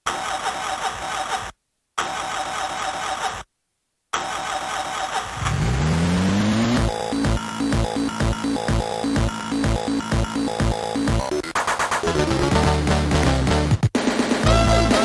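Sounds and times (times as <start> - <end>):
car starter cranking: 4.2 - 10.9
car engine revving: 5.3 - 11.3.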